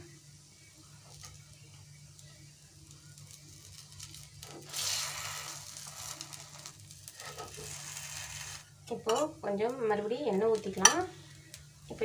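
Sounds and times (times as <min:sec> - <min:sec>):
food sizzling in oil: 0:00.0 - 0:12.0
metal skewer scraping a pan: 0:03.7 - 0:09.3.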